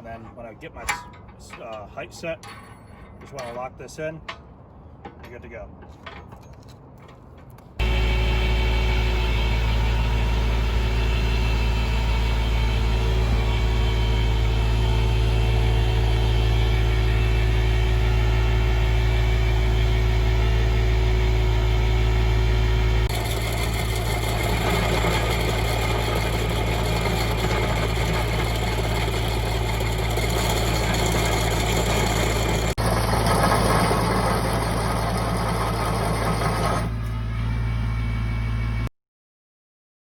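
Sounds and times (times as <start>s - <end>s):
hydraulic machine noise: 5.9s - 37.6s
excavator engine running: 7.8s - 38.9s.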